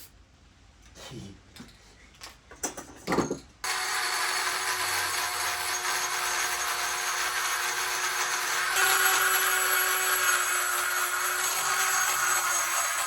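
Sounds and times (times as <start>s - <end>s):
power grinder grinding: 3.6s - 13.0s.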